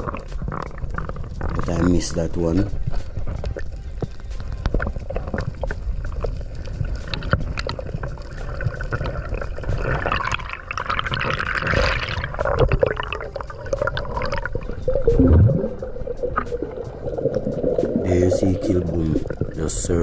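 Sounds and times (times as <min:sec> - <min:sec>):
water gurgling and bubbling: 0:00.0 - 0:20.0
hissing rush of bubbles: 0:04.6 - 0:19.7
loud low gurgle: 0:07.7 - 0:19.9.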